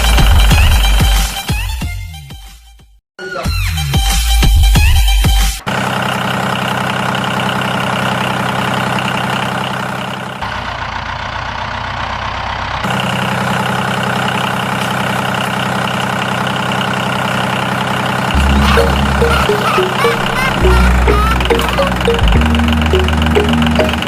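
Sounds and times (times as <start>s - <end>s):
small tractor engine idling: 5.6s - 24.0s.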